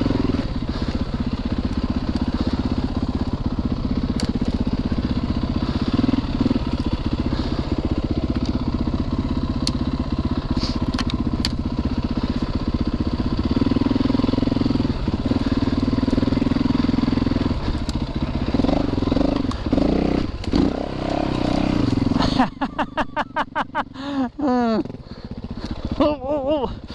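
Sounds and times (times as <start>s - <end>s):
dirt bike engine revving: 0.0s - 26.9s
sharp ticks: 9.4s - 10.0s.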